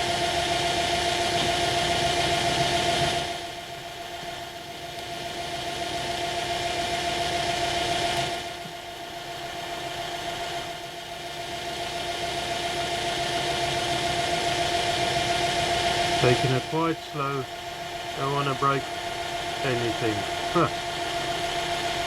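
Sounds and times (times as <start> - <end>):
drilling machine motor running: 0.0 - 22.0
drill bit cutting metal: 13.6 - 22.0.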